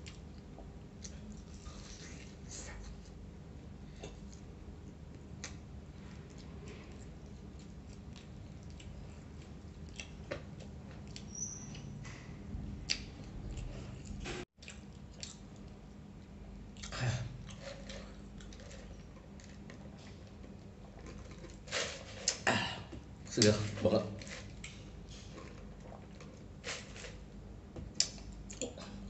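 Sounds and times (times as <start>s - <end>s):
person chewing food: 0.0s - 3.3s, 3.9s - 11.9s, 12.8s - 23.0s, 24.3s - 27.3s
wet mouth clicks and smacks: 12.9s - 13.1s.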